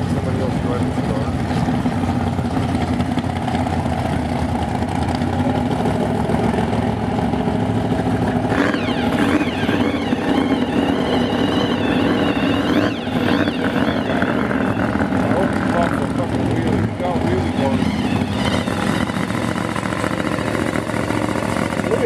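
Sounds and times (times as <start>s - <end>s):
engines rumbling: 0.0s - 22.0s
high wavering tone: 8.4s - 21.3s.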